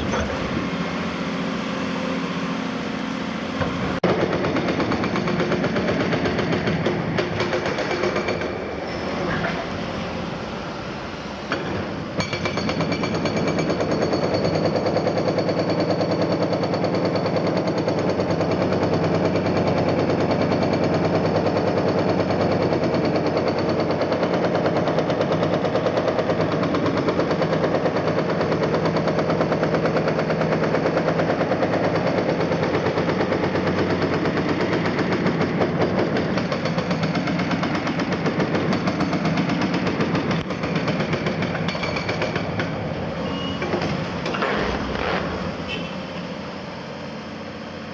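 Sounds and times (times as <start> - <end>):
diesel engine running: 0.0 - 4.6, 42.3 - 47.9
hydraulic breaker hammer pounding: 3.5 - 9.6, 11.5 - 46.0.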